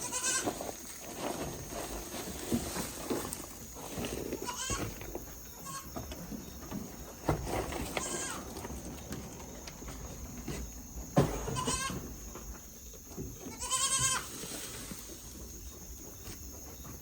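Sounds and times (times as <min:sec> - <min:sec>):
goats bleating: 0:00.0 - 0:00.5, 0:04.4 - 0:04.9, 0:07.9 - 0:08.5, 0:11.3 - 0:12.0, 0:13.5 - 0:14.3.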